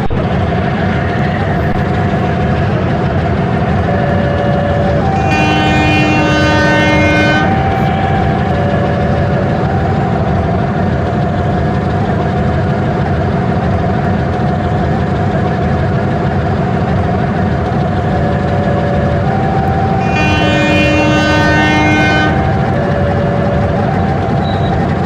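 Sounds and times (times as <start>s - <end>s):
train rumbling: 0.0s - 25.0s
train horn: 3.6s - 11.8s, 18.1s - 25.0s.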